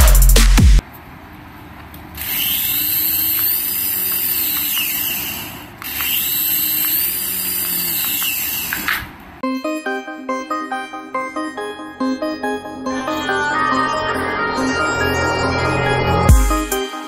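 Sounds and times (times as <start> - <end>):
toy electric motor whirring: 2.2 - 9.2.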